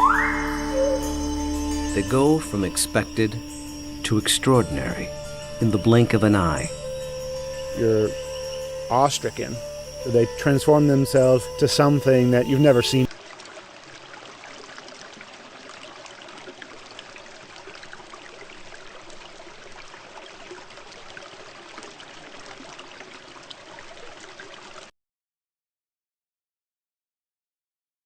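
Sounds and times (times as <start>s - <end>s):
running water trickling: 0.0s - 24.9s.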